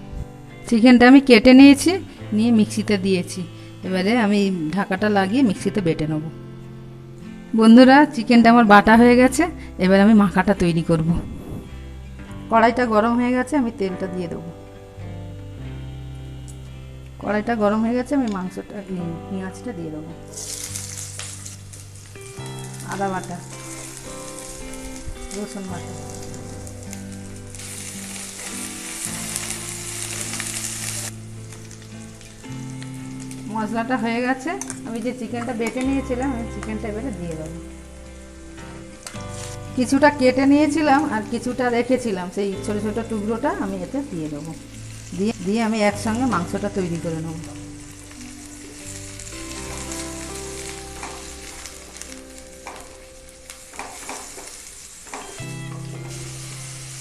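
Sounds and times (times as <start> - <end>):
onion sizzling in hot oil: 15.7 - 57.0.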